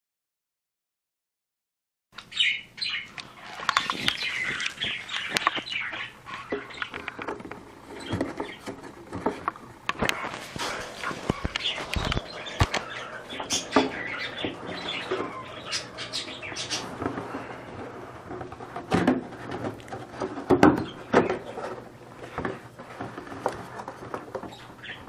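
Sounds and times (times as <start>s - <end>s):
pet birds chirping: 2.2s - 18.6s, 19.4s - 25.0s
rustling: 3.1s - 25.0s
knocks and clicks: 6.5s - 15.3s.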